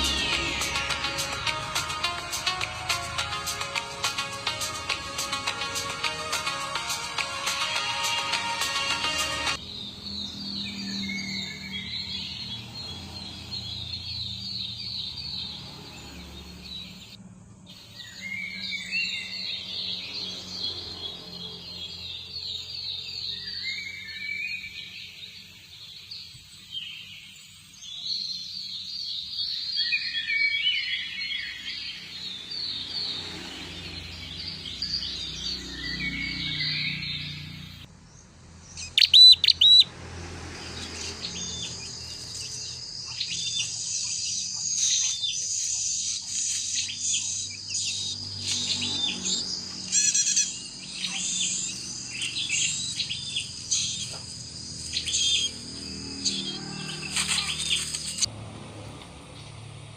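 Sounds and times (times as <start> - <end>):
steady high-pitched tone: 0.0 - 3.6
small birds chirping: 0.0 - 58.3.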